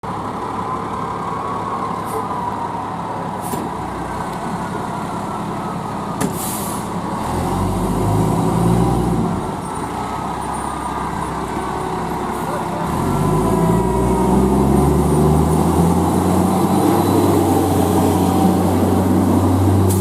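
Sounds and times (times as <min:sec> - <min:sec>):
diesel engine running: 0:00.0 - 0:20.0
air brake hiss: 0:03.4 - 0:03.7, 0:06.3 - 0:06.9.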